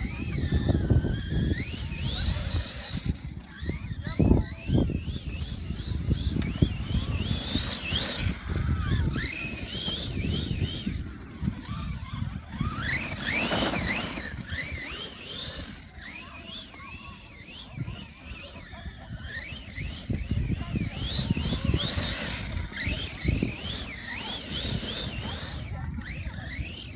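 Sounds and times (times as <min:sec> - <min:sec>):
electric motor whining: 0:00.0 - 0:26.9
tyres rumbling in snow: 0:04.6 - 0:16.3.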